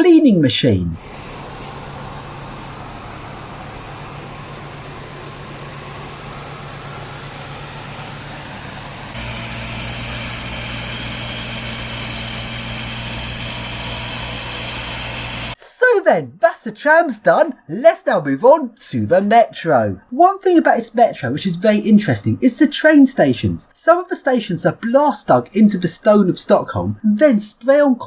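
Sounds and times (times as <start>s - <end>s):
high machine whine: 1.0s - 15.6s
machine engine hum: 1.0s - 15.6s.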